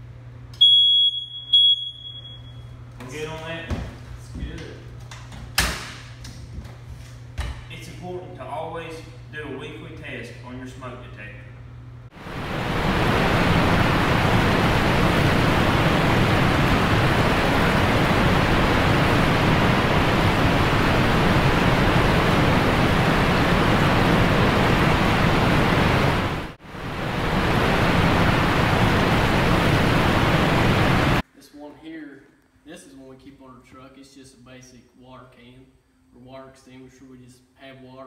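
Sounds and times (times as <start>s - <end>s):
loud steady rushing noise: 12.1s - 31.2s.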